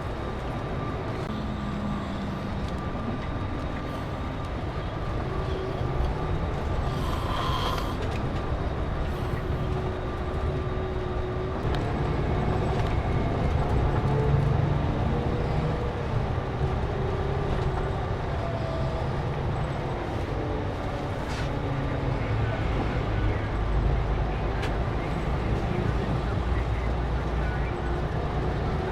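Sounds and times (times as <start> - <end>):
faint steady whines: 0.0 - 12.0
coach engine rumble: 0.0 - 28.9.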